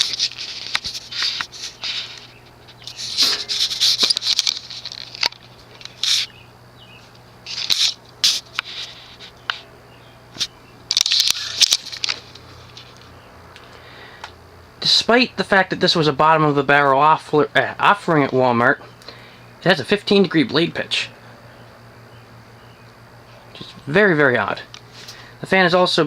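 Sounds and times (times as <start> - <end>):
clicks and scratchy rattles: 0.0 - 6.3, 10.4 - 13.1
ceiling fan motor hum: 0.0 - 26.0.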